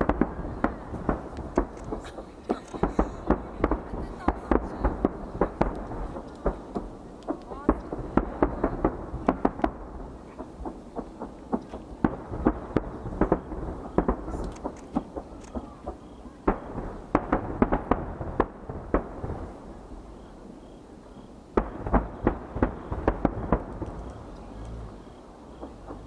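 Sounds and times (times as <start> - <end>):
firework shells bursting: 0.0 - 20.0, 21.5 - 26.0
low echoing rumble: 21.7 - 26.0.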